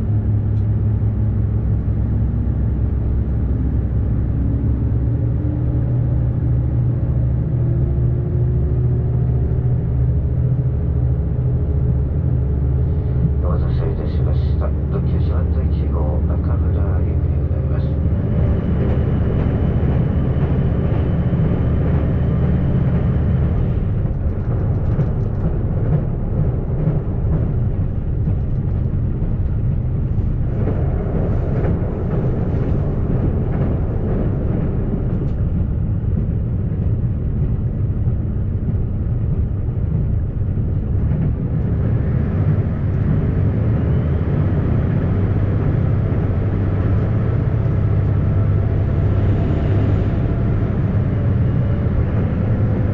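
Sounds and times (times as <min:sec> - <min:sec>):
railcar engine drone: 0:00.0 - 0:52.9
wheels rolling on rail: 0:17.7 - 0:52.9.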